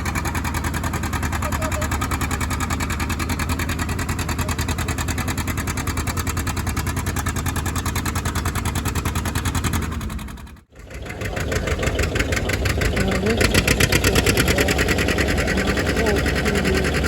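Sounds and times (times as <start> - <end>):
engine running with even pulse: 0.0 - 17.0.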